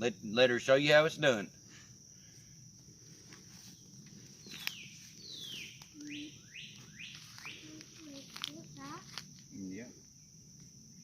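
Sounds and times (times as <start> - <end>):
high-pitched insect drone: 0.0 - 11.0
bird whistling: 4.5 - 7.7.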